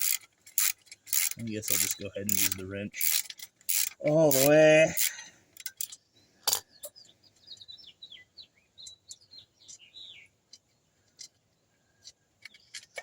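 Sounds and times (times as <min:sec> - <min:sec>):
songbird chirping and whistling: 0:06.2 - 0:10.4.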